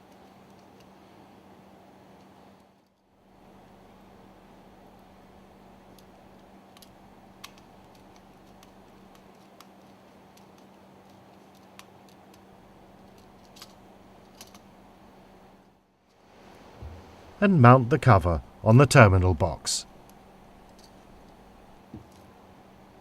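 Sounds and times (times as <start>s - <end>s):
faint steady hum: 0.0s - 23.0s
small parts clicking: 5.9s - 12.4s, 13.0s - 14.7s.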